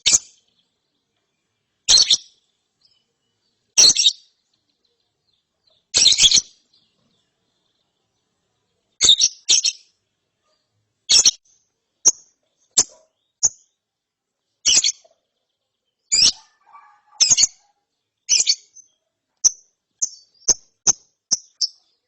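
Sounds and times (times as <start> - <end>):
lovebird chirping: 0.0 - 13.8, 14.6 - 22.0.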